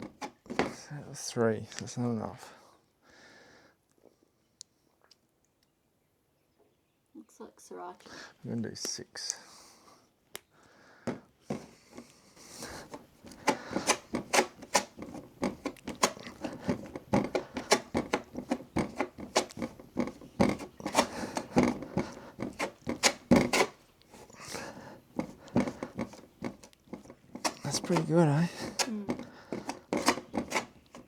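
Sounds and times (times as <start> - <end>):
spreader scraping paste: 11.5 - 31.0.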